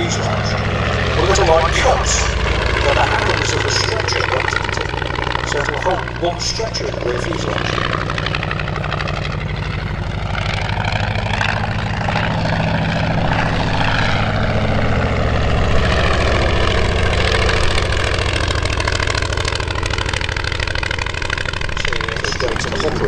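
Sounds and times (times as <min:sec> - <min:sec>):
propeller aeroplane engine: 0:00.0 - 0:23.0.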